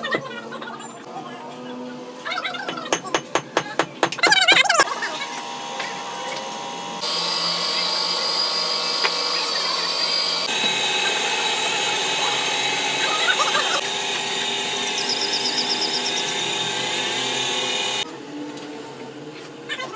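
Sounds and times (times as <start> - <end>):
power tools whining and humming: 4.8 - 18.4.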